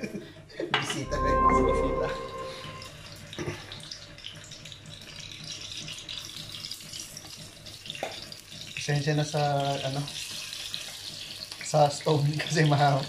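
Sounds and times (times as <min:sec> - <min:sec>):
chicken sizzling in frying pan: 0:05.6 - 0:13.0.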